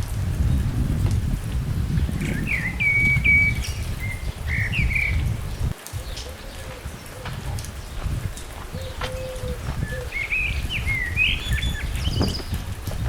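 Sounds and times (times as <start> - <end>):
wind buffeting microphone: 0.0 - 13.0
songbird chirping: 2.0 - 12.7.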